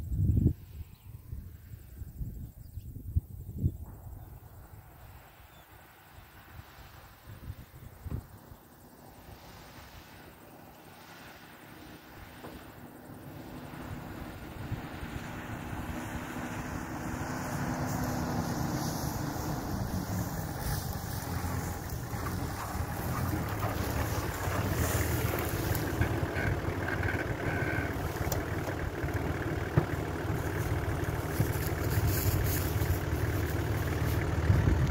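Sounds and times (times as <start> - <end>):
four-wheel drive engine climbing: 3.8 - 34.9
wind buffeting microphone: 13.0 - 29.0, 34.2 - 34.9.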